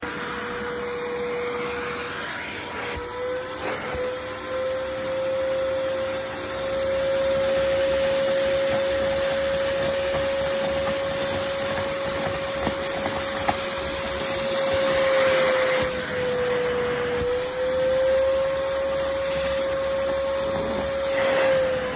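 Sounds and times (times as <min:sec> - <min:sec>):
suction motor whining: 0:00.0 - 0:21.9.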